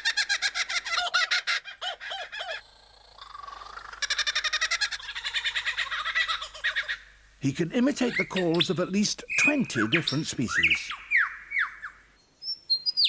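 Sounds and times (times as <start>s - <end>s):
lyrebird mimicking bird calls: 0.0s - 7.1s, 7.9s - 12.0s.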